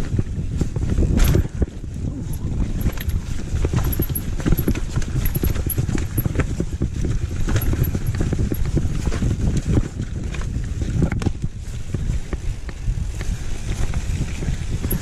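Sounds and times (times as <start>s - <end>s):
low rumble: 0.0s - 9.9s
mountain bike knocks and rattles: 0.0s - 15.0s.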